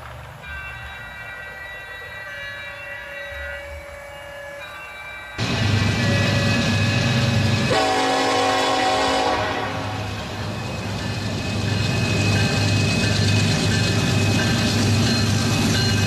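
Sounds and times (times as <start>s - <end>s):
train rumbling: 0.0s - 16.0s
train horn chord: 7.7s - 10.2s.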